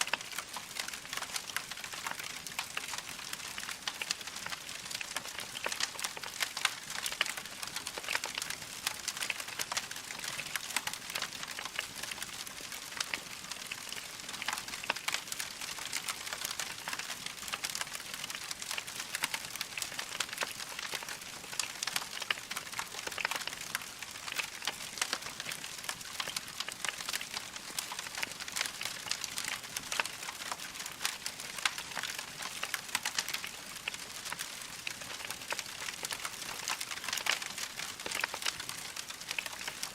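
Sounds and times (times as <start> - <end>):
log fire crackling: 0.0 - 39.9.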